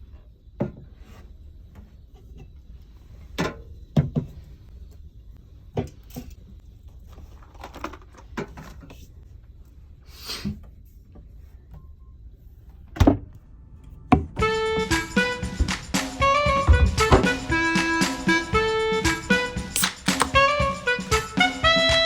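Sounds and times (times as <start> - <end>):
knocks of things being handled: 19.8 - 20.4
short hiss: 19.8 - 20.4.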